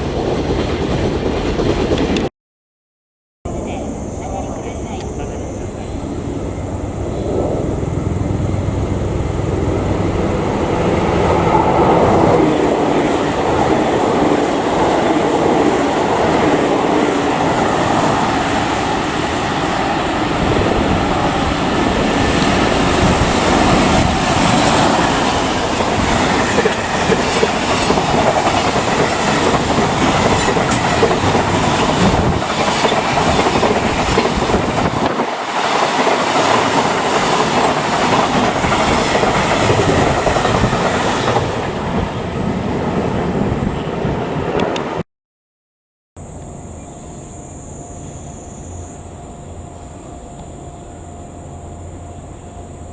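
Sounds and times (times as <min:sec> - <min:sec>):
freight train wheels clattering: 0:12.0 - 0:43.4.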